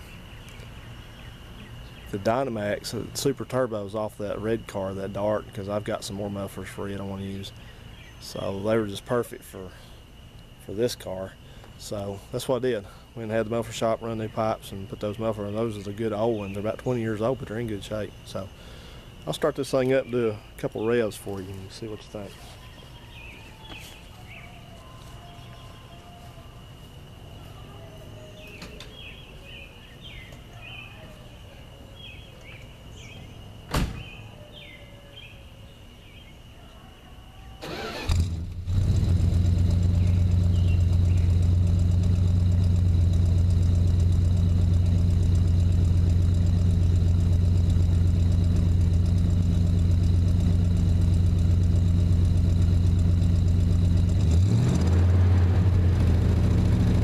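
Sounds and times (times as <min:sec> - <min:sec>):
birds chirping: 0:00.0 - 0:38.0, 0:39.4 - 0:54.9
car engine revving: 0:37.6 - 0:57.0
car engine starting and idling: 0:37.6 - 0:57.0.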